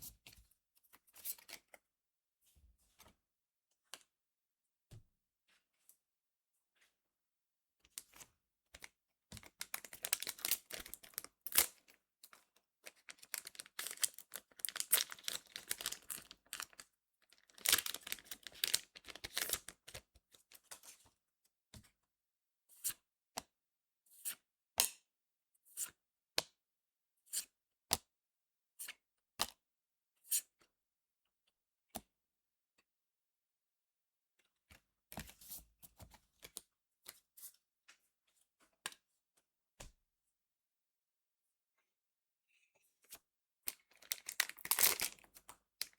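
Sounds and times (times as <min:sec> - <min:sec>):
wrapper tearing and crinkling: 0:09.7 - 0:11.8, 0:13.1 - 0:16.8, 0:17.4 - 0:19.7, 0:43.9 - 0:45.9.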